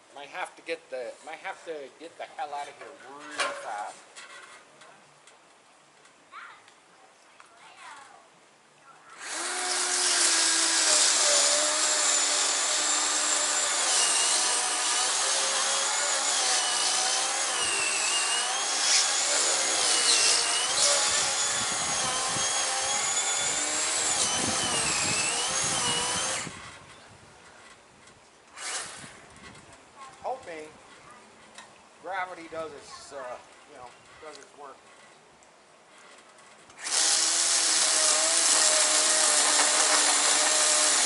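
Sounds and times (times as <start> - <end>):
chainsaw cutting wood: 9.2 - 26.8, 28.5 - 29.2, 36.1 - 41.0.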